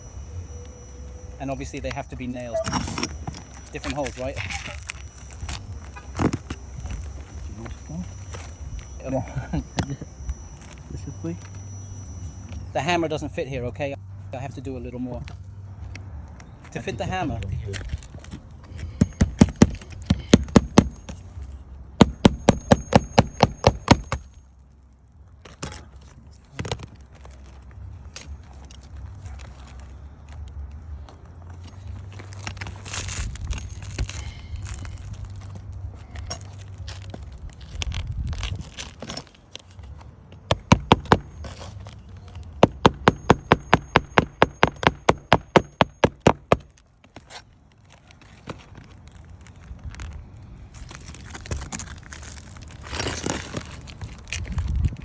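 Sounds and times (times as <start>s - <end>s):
hammer striking nail into tile: 19.0s - 21.0s, 22.0s - 24.2s, 40.5s - 41.3s, 42.6s - 46.6s.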